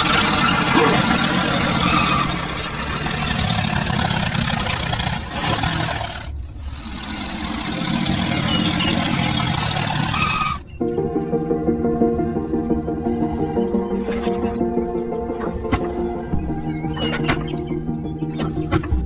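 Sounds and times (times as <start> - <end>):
engine rumbling: 0.0 - 19.0.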